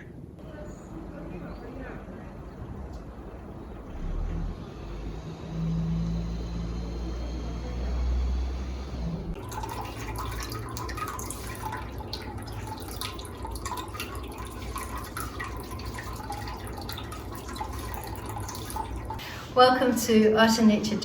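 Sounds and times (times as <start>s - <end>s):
vehicle engine humming: 1.6s - 9.4s
water dripping into a basin: 9.4s - 19.2s.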